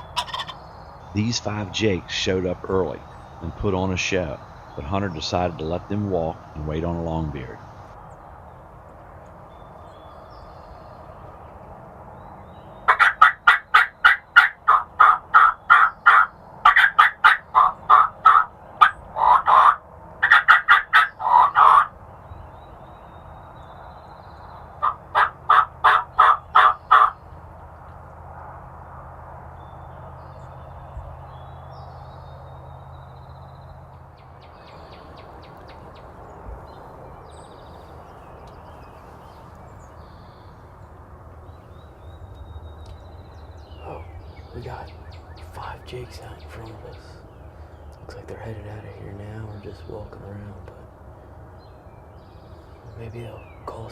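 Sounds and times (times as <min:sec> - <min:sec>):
turkeys yelping: 0:00.0 - 0:08.0, 0:12.8 - 0:22.0, 0:24.5 - 0:28.0, 0:43.3 - 0:51.5.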